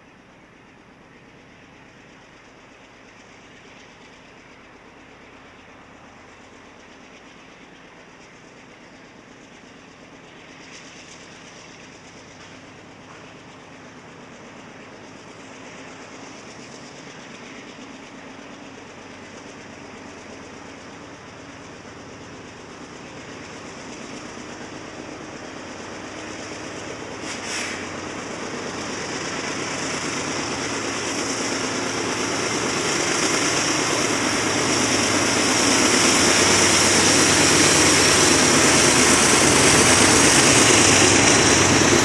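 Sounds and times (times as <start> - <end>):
diesel locomotives running: 0.0 - 42.0
high hiss: 25.2 - 42.0.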